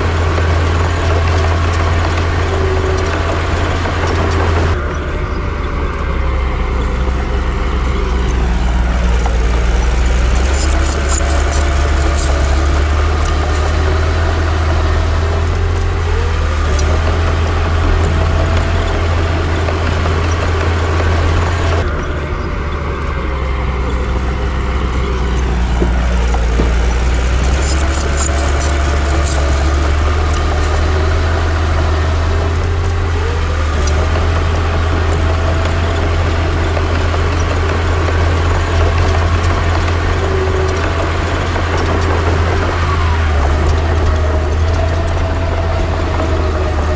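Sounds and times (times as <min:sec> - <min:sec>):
bulldozer diesel engine: 0:00.0 - 0:46.9
high metallic clinks: 0:09.1 - 0:14.1, 0:23.9 - 0:31.2.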